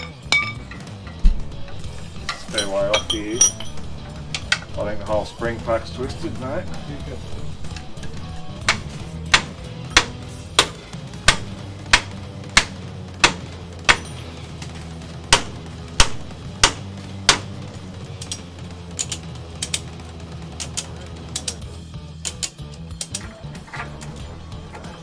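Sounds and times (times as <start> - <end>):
sharp metal knocks: 0.0 - 19.8
steady low hum: 0.0 - 20.6.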